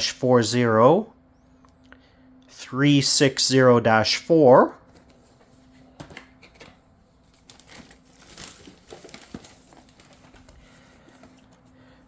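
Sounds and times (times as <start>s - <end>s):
packaging crinkling and rustling: 4.9s - 12.0s.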